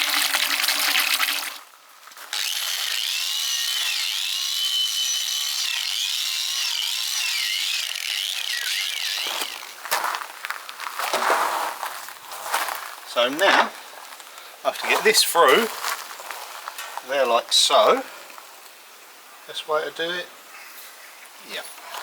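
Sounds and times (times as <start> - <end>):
hose water running into trough: 0.0 - 1.7, 2.3 - 10.0.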